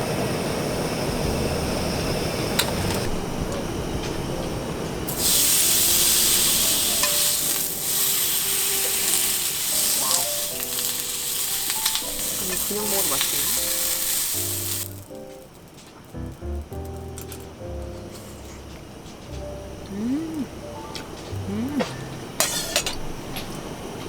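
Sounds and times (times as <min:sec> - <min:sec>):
food sizzling in a hot pan: 0:05.1 - 0:17.4.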